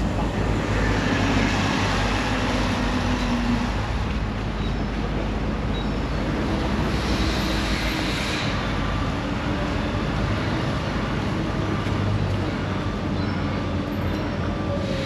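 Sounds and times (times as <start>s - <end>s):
train rumbling past: 0.0s - 15.0s.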